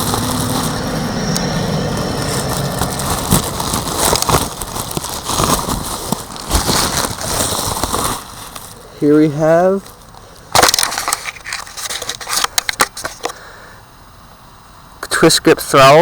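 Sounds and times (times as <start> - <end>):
packaging crinkling: 0.0 - 8.9, 9.7 - 13.3.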